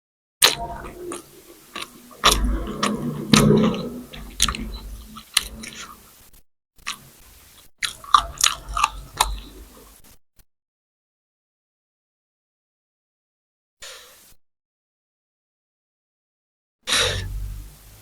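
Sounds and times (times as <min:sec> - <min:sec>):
person biting and chewing food: 0:07.8 - 0:09.4.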